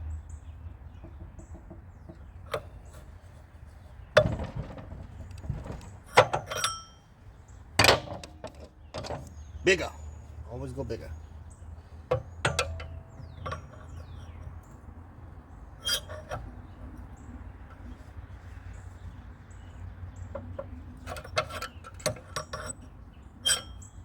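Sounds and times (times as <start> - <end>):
metal hand tools clinking: 6.1 - 7.0, 23.4 - 23.9.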